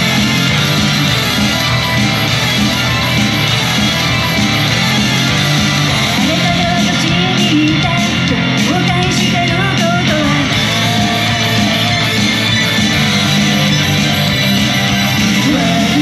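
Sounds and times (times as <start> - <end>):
electric guitar: 0.0 - 16.0
person singing: 5.9 - 16.0.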